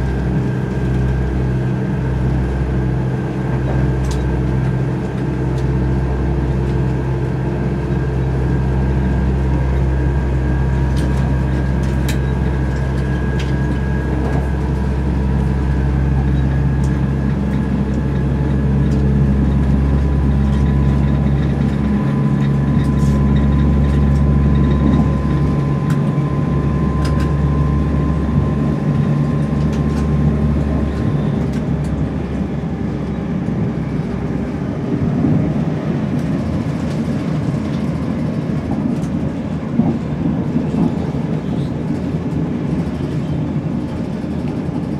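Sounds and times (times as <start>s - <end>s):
diesel engine droning: 0.0s - 44.9s.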